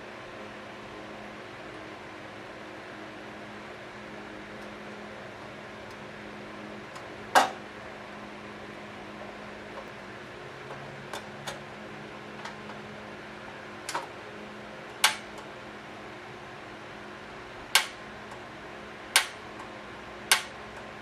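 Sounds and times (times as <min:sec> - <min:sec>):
steady low hum: 0:00.0 - 0:21.0
clicks and knocks of gas stove parts: 0:07.4 - 0:07.6, 0:17.8 - 0:18.0, 0:19.2 - 0:19.4.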